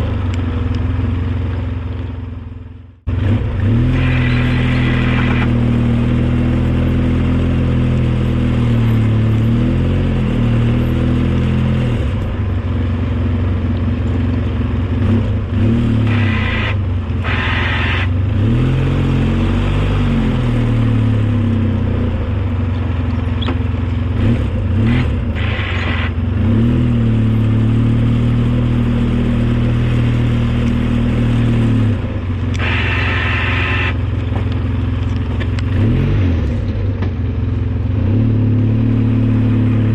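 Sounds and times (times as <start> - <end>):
vehicle engine revving: 2.5 - 39.9
high-pitched whine: 3.8 - 6.0, 15.9 - 18.4, 24.9 - 26.3, 31.8 - 34.2.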